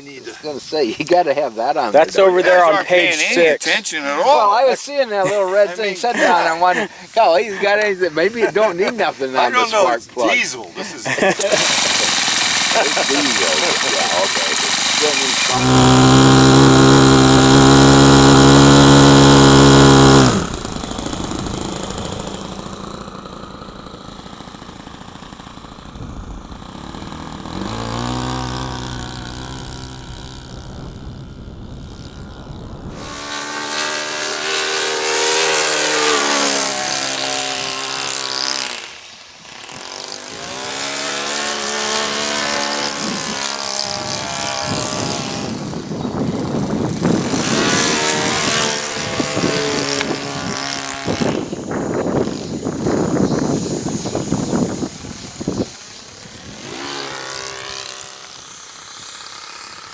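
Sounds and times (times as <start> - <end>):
model airplane engine running: 11.2 - 59.9.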